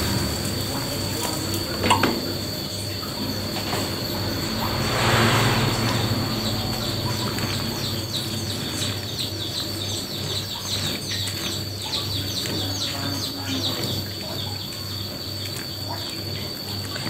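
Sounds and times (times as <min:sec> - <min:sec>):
low throbbing hum: 0:00.0 - 0:12.3
small birds chirping: 0:06.0 - 0:16.4.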